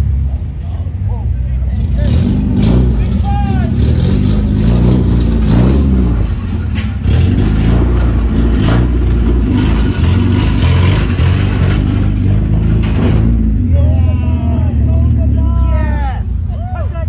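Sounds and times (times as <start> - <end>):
car engine revving: 1.5 - 16.0.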